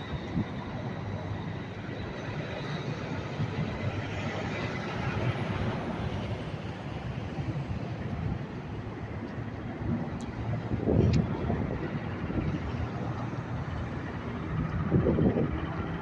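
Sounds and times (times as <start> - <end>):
heavy vehicle engines rumbling: 0.0 - 16.0.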